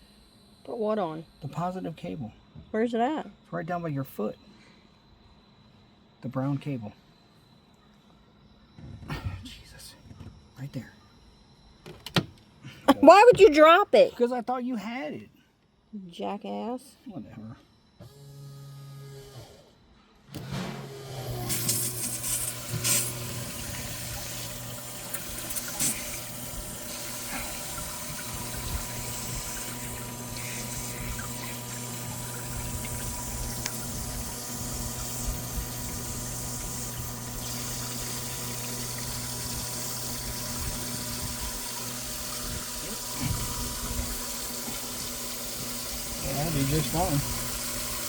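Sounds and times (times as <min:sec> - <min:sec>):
aerator pump humming: 0:20.3 - 0:48.0
water splashing: 0:21.5 - 0:48.0.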